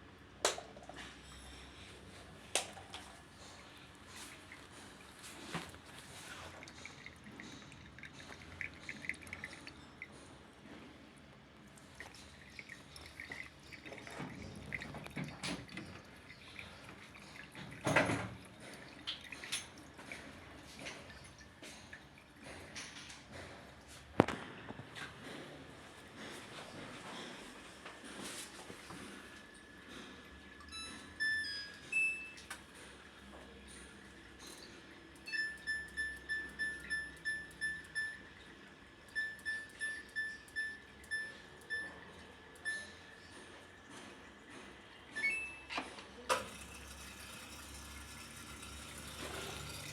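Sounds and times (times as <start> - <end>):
washing machine control panel beeps: 30.4 - 32.7, 33.9 - 43.8, 45.0 - 49.9.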